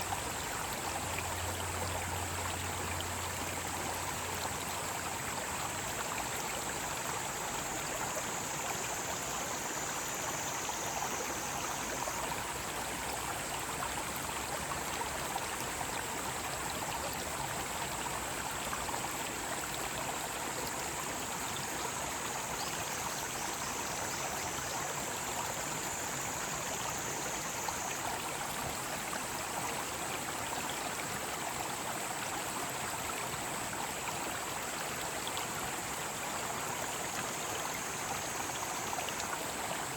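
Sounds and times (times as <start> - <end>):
stream rushing over rocks: 0.0 - 39.9
cicadas buzzing: 5.2 - 13.1, 19.8 - 29.6
wavering cicada call: 5.9 - 13.2, 19.9 - 29.8.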